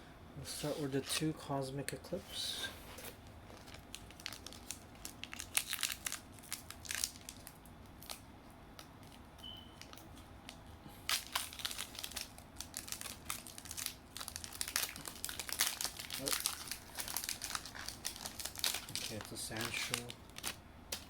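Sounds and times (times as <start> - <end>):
foil wrapper crinkling and tearing: 3.4 - 21.0.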